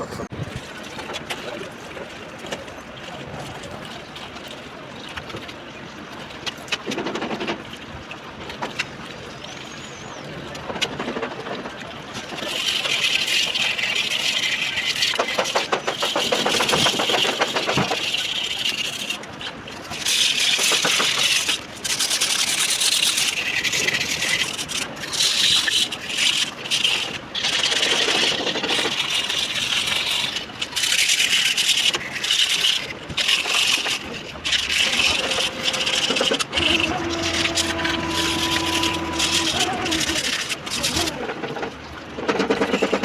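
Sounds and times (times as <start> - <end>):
fast rattling scrub: 19.9 - 41.2.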